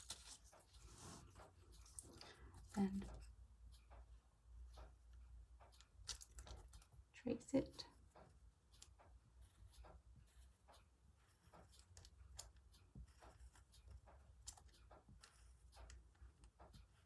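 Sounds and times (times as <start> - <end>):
tracing paper ticks and rustles: 0.0 - 3.3, 7.6 - 17.0.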